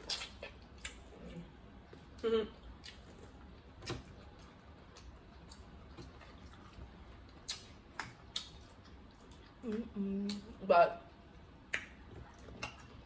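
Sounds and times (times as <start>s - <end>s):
chewing: 0.0s - 10.6s.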